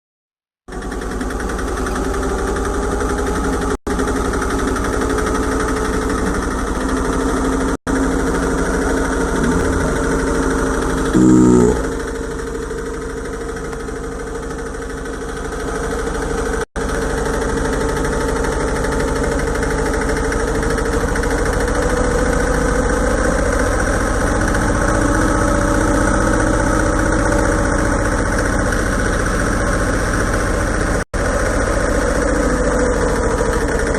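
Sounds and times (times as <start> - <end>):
motorcycle engine idling: 0.7 - 33.9.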